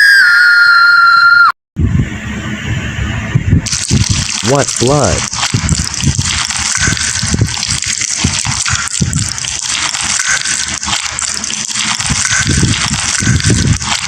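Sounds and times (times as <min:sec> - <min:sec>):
loud harsh hiss: 0:03.6 - 0:14.0.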